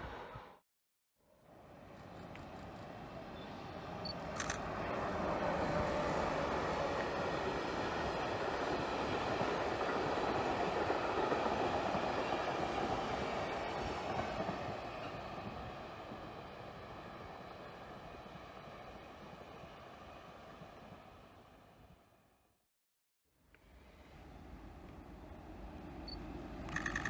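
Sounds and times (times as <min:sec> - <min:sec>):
train wheels on rails: 0:01.9 - 0:18.6.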